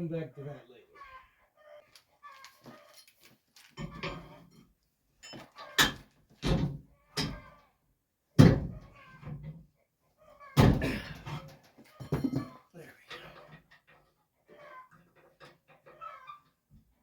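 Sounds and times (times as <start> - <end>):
sharp ringing knocks and clunks: 5.2 - 7.5, 8.4 - 9.5, 10.6 - 12.6.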